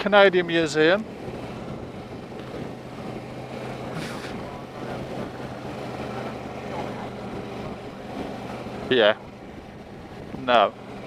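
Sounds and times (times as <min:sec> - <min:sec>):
motorcycle engine humming: 0:00.0 - 0:11.0
brief hiss: 0:04.0 - 0:04.4.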